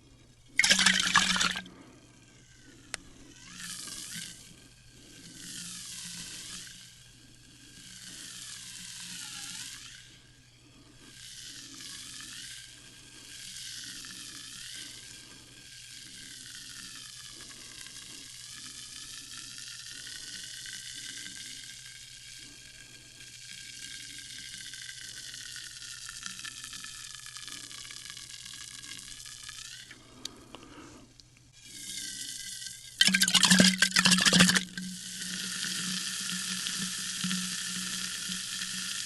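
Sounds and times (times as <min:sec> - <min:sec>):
sparkling water fizzing: 0:00.6 - 0:01.6, 0:33.0 - 0:34.8.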